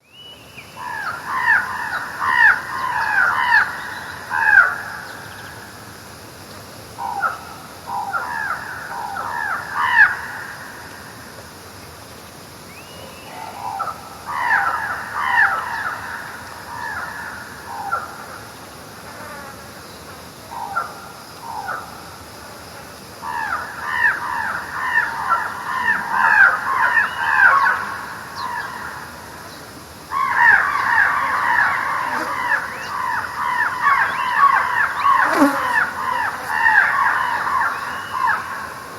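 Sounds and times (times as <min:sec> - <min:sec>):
crows cawing: 0:23.3 - 0:29.1.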